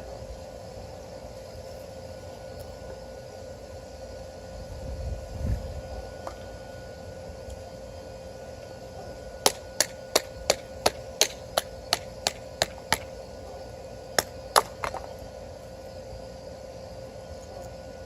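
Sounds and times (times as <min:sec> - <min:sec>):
wood splitting: 0:14.2 - 0:15.1.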